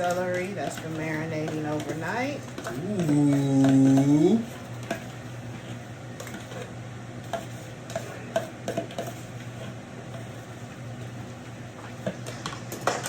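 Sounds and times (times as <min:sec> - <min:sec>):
spoon tapping and scraping pot: 0:00.0 - 0:10.3
spoon stirring creamy filling: 0:00.0 - 0:12.4.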